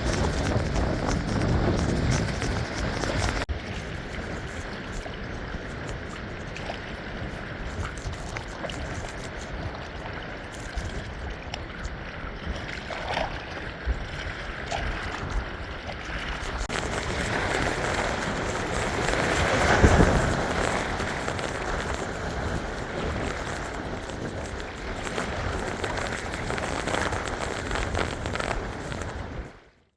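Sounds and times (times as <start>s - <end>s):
blizzard wind blowing: 0.0s - 6.4s, 16.4s - 29.6s
waves splashing against shore: 0.0s - 29.7s.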